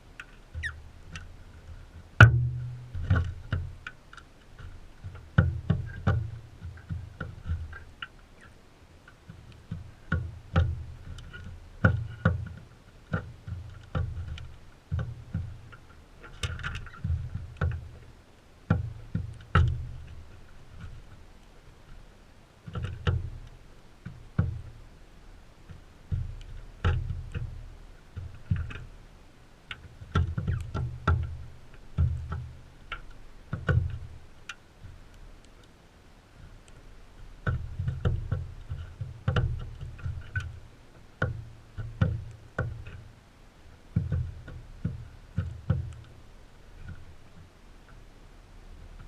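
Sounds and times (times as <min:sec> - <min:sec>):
birds pecking on feeder: 0:25.6 - 0:35.8, 0:36.5 - 0:47.5.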